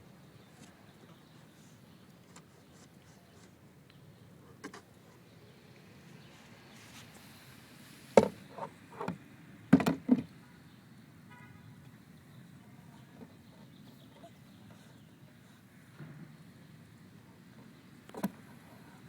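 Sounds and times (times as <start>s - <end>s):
sharp knocks and thumps: 8.2s - 8.4s, 9.0s - 10.3s.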